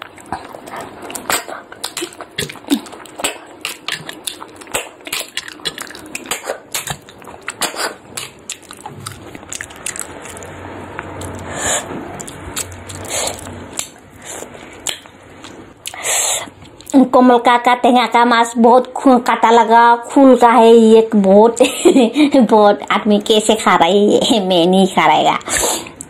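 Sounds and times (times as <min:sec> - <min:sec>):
wet chewing and smacking: 0:00.0 - 0:11.6, 0:12.2 - 0:16.0, 0:16.6 - 0:17.0.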